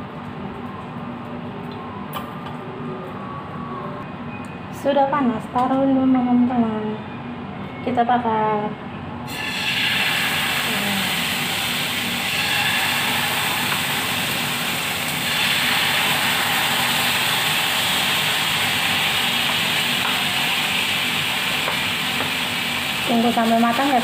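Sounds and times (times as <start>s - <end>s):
fish sizzling in a frying pan: 9.3s - 24.0s.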